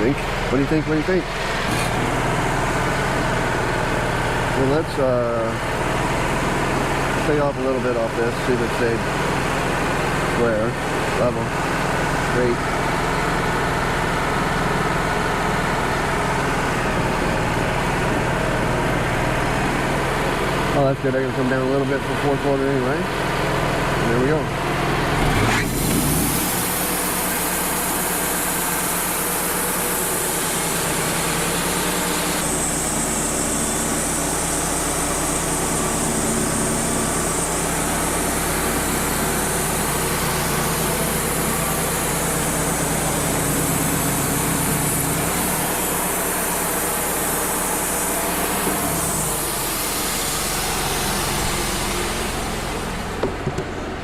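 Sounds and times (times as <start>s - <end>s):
engine humming: 0.0s - 54.0s
bandsaw blade cutting wood: 1.6s - 2.1s.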